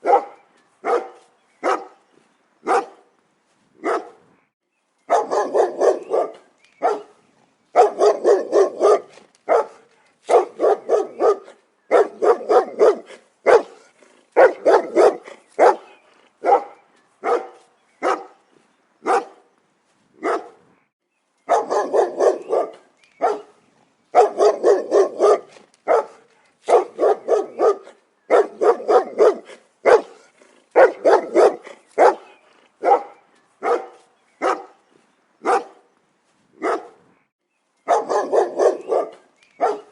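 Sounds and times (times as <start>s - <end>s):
dog barking: 0.0s - 2.0s, 2.6s - 3.0s, 3.8s - 4.2s, 5.1s - 7.2s, 7.8s - 18.4s, 19.0s - 19.4s, 20.2s - 20.6s, 21.5s - 34.8s, 35.4s - 35.9s, 36.6s - 37.0s, 37.9s - 39.9s.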